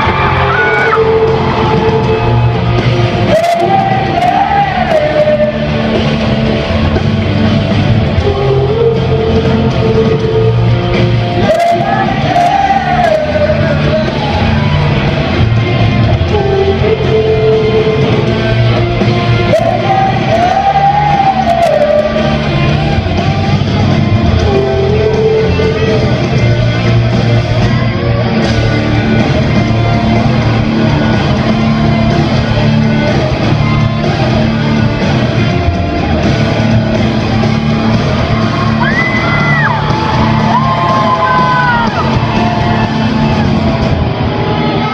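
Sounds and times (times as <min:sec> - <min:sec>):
person singing: 0:00.0 - 0:02.6, 0:03.2 - 0:06.1, 0:08.1 - 0:23.5, 0:24.2 - 0:26.8
loud rock band music: 0:00.0 - 0:44.9.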